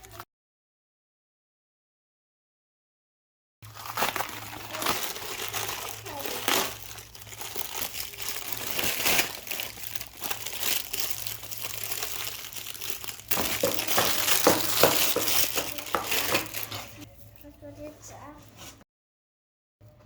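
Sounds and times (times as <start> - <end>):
plastic packaging crinkling: 3.6 - 17.1.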